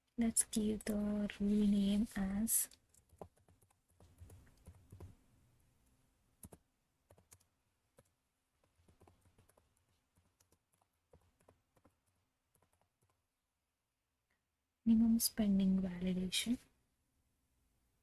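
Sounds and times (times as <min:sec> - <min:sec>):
typing on a computer keyboard: 0:02.7 - 0:05.2, 0:06.4 - 0:13.2.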